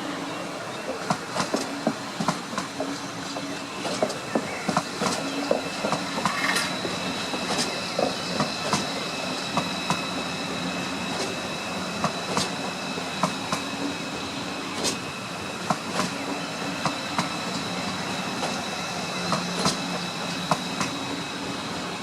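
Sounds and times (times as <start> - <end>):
train wheels clicking over rail joints: 0.8 - 14.0, 14.7 - 21.6.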